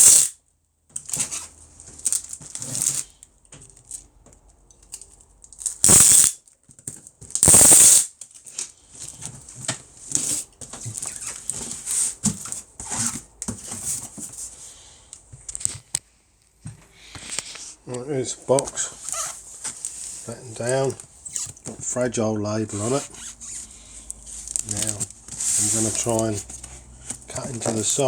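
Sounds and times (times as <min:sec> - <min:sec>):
packing tape screeching: 0:00.0 - 0:00.4, 0:01.0 - 0:03.2, 0:05.6 - 0:06.4, 0:07.3 - 0:08.4, 0:10.0 - 0:13.2, 0:19.0 - 0:21.8, 0:22.7 - 0:28.0
cardboard rustling and knocking: 0:09.3 - 0:14.6.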